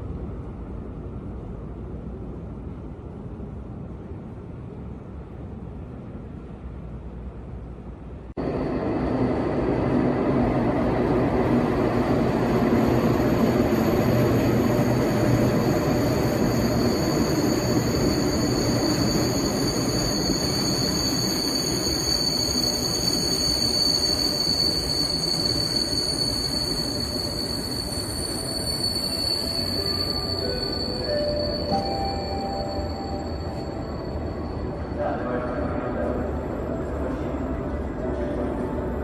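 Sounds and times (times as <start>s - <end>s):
train rumbling: 0.0s - 39.0s
high-pitched squeal: 11.2s - 38.9s
short high tones: 15.1s - 37.7s.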